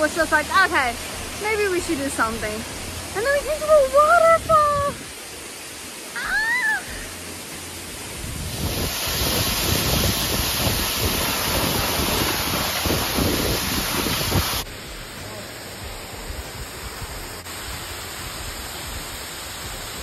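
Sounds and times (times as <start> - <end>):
wind buffeting microphone: 0.0 - 5.3, 8.0 - 14.7
waterfall rushing: 0.0 - 20.0.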